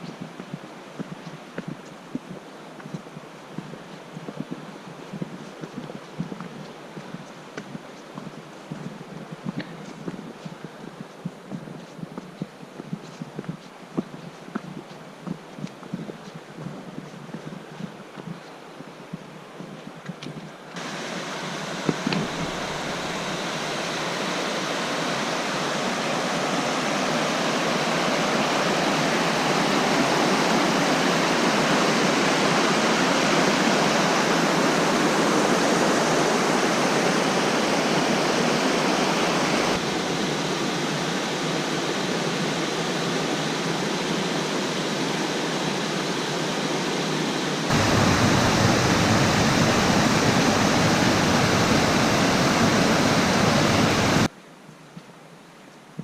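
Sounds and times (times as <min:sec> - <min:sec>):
flowing water rushing: 0:20.8 - 0:54.3.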